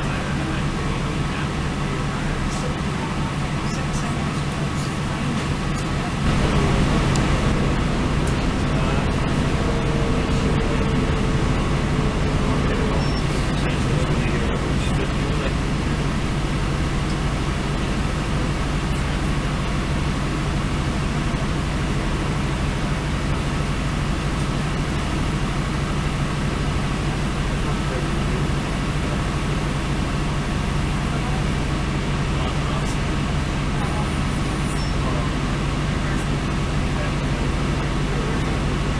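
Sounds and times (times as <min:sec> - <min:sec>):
train engine drone: 0:00.0 - 0:38.9
train wheels rolling on rails: 0:04.0 - 0:27.1.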